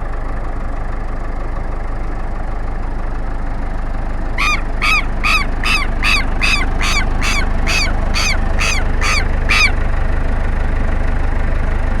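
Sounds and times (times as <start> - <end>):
bird alarm calls: 4.4 - 9.9.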